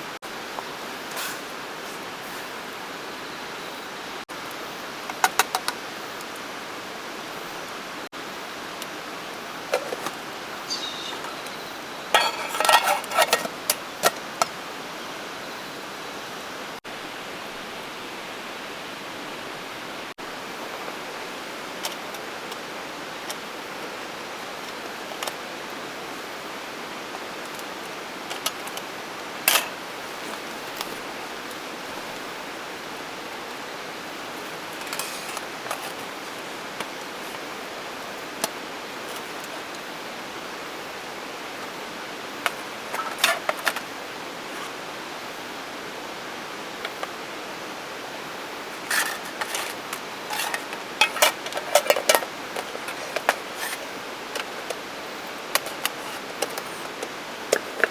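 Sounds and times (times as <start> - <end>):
steady background hiss: 0.0 - 57.9
camp cooking gear clinking: 9.6 - 14.8, 27.0 - 32.2, 33.3 - 39.9, 41.5 - 44.9, 46.2 - 57.9.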